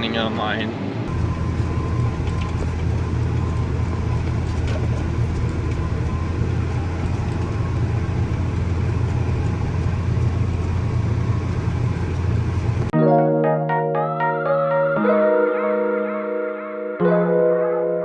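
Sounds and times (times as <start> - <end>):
harvest machinery engine drone: 1.1 - 12.9.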